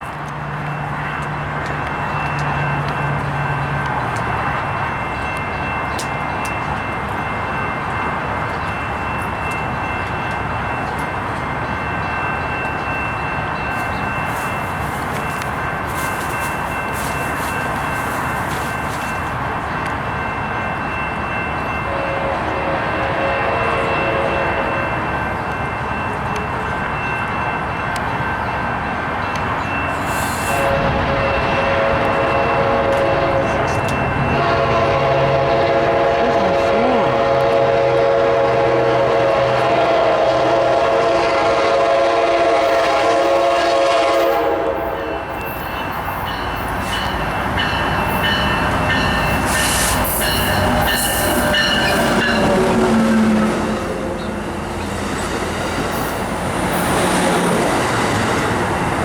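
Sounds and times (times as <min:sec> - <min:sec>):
train rumble and rail noise: 0:00.0 - 0:59.0.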